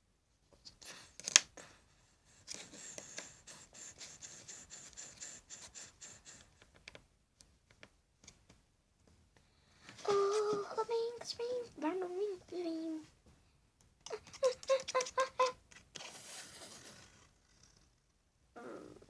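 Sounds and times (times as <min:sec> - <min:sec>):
toys scratching and rubbing: 0:14.1 - 0:17.8.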